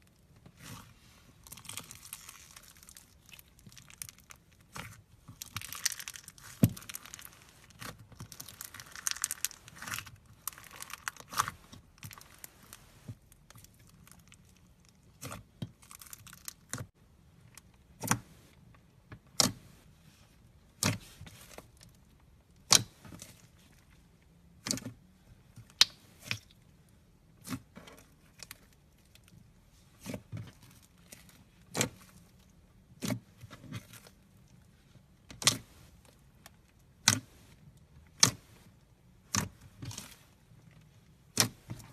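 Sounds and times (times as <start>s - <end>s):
slime crinkly crackle: 1.3s - 16.9s.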